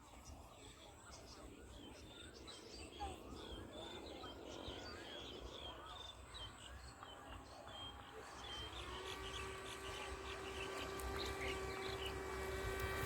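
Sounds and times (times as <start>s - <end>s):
small birds chirping: 0.0s - 13.0s
electric motor whine: 8.5s - 13.0s.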